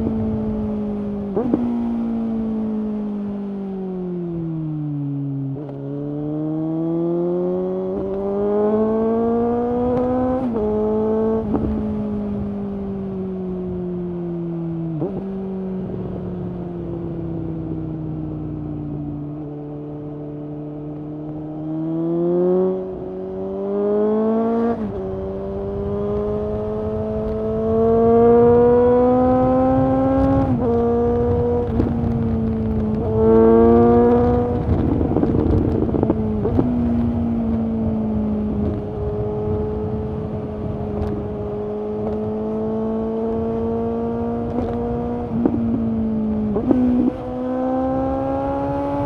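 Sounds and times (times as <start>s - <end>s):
motorcycle engine accelerating: 0.0s - 49.0s
wind rumble: 24.0s - 49.0s.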